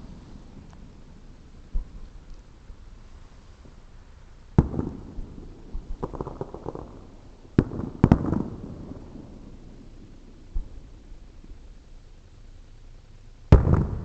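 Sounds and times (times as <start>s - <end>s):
firework crackles: 0.0s - 14.0s
firework bangs: 4.5s - 11.5s, 13.5s - 14.0s.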